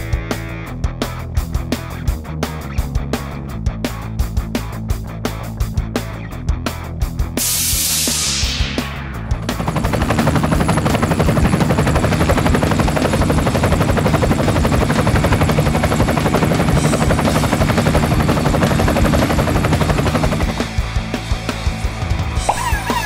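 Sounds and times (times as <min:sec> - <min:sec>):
helicopter rotor chopping: 0:07.4 - 0:23.0.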